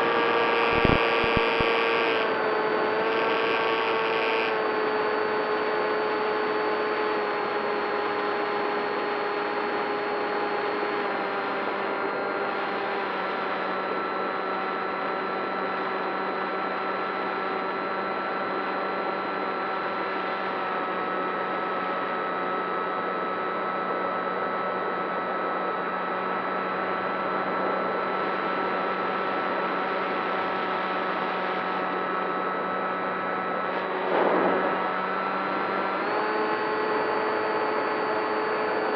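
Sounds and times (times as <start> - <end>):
model plane motor whine: 0.0 - 38.9
rushing noise burst: 34.0 - 34.9.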